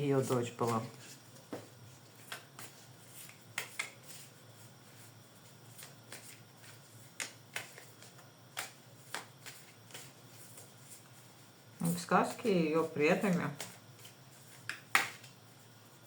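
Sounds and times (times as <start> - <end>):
cards snapping and tapping: 2.2 - 4.1, 7.0 - 10.1, 14.6 - 15.4.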